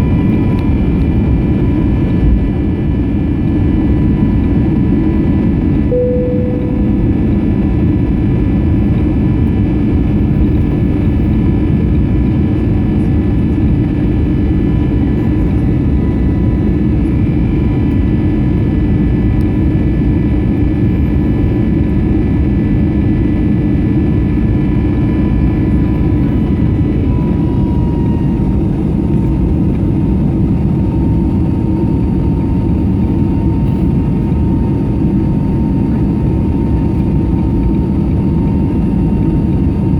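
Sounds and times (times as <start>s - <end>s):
jet engines rushing and whining: 0.0s - 39.9s
short clear tone: 5.9s - 7.8s.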